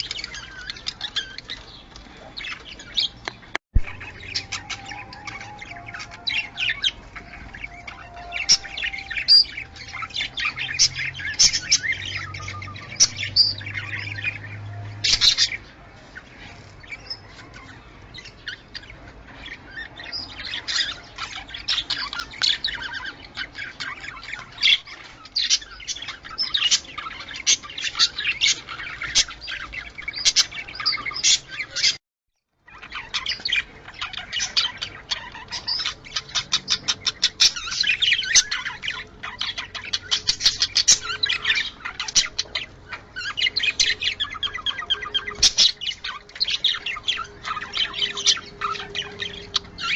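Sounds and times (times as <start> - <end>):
budgerigars chirping and warbling: 0.0 - 32.0, 32.6 - 49.9.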